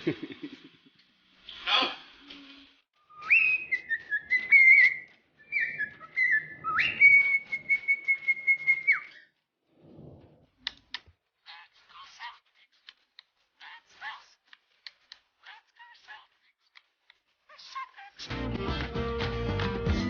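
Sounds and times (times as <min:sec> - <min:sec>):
person whistling: 0:03.1 - 0:09.3.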